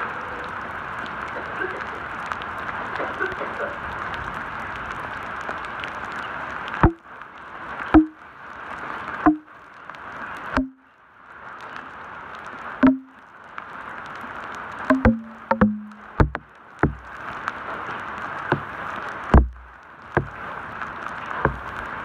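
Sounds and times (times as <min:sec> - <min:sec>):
heavy rain on a road: 0:00.0 - 0:22.0
raindrops tapping near microphone: 0:00.0 - 0:22.0.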